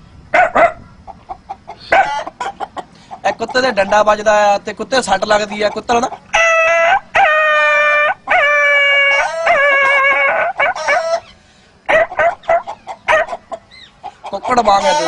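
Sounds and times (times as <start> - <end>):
man imitating dog yelping and howling: 1.9 - 2.2, 6.4 - 11.2, 11.9 - 13.4.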